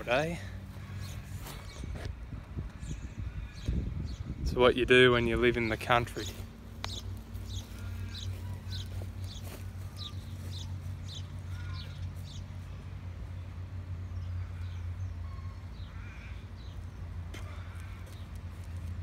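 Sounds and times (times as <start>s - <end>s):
steady low hum: 0.0s - 19.0s
bird chirping: 5.7s - 12.6s.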